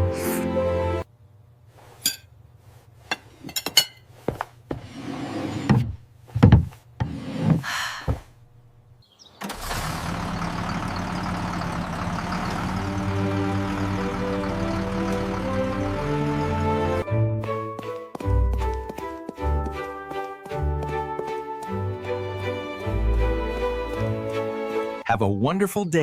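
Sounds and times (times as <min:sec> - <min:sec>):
music: 0:00.0 - 0:01.0, 0:12.9 - 0:26.0
knocks clicks and thuds: 0:05.7 - 0:06.8.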